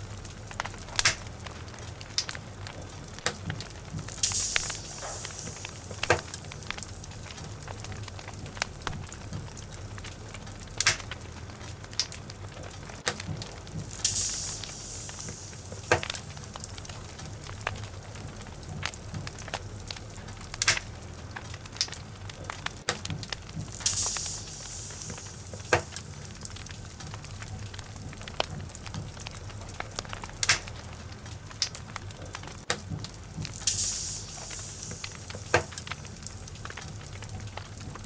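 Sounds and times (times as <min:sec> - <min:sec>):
fire crackles and pops: 0:00.0 - 0:38.0
logs burning in fireplace: 0:00.0 - 0:38.0
bursts of hiss: 0:03.3 - 0:10.0, 0:13.5 - 0:20.9, 0:23.3 - 0:30.8, 0:32.8 - 0:38.0.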